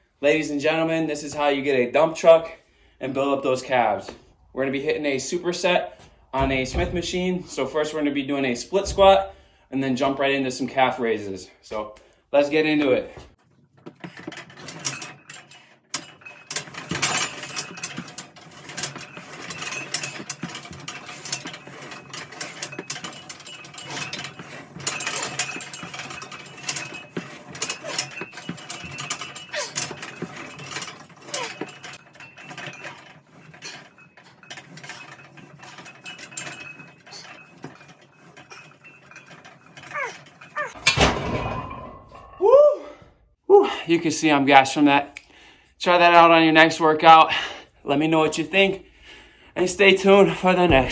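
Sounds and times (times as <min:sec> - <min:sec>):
metallic clicks and clanks: 0:13.4 - 0:42.4
weight machine bar sliding: 0:13.8 - 0:43.0, 0:49.6 - 0:50.9.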